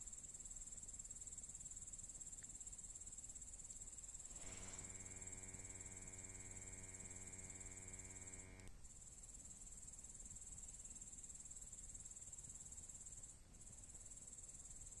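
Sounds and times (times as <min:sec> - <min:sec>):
insects chirring: 0:00.2 - 0:08.7
low electrical hum: 0:04.0 - 0:09.1
click: 0:08.0 - 0:08.8.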